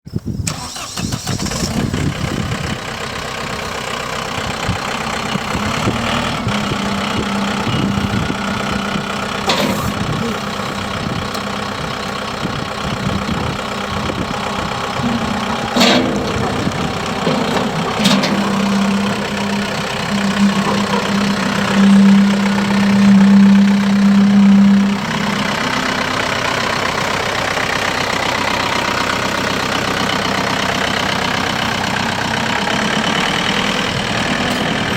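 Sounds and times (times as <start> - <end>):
tractor diesel engine idling: 0.5 - 34.9
steady hum: 13.3 - 26.4.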